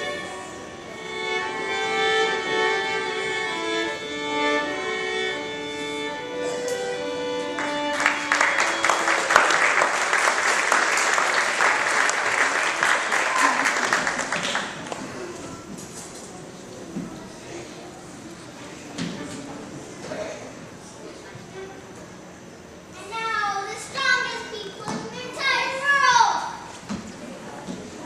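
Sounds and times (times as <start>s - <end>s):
violin melody: 0.0s - 9.4s
audience clapping: 7.5s - 15.3s.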